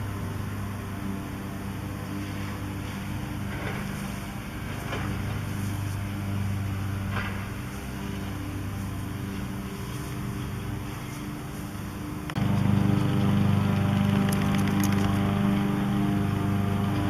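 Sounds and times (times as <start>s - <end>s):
excavator diesel engine running: 11.8s - 17.0s.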